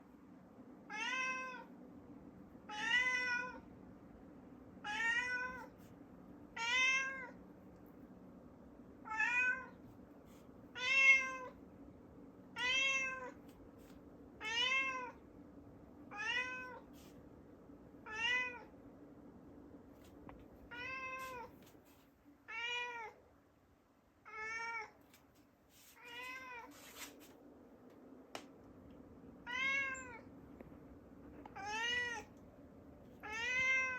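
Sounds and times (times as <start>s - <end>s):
cat meowing: 0.9s - 1.7s, 2.7s - 3.6s, 4.9s - 5.7s, 6.6s - 7.4s, 9.0s - 9.8s, 10.8s - 11.6s, 12.6s - 13.4s, 18.1s - 18.7s, 29.4s - 30.3s, 31.6s - 32.3s, 33.2s - 33.9s.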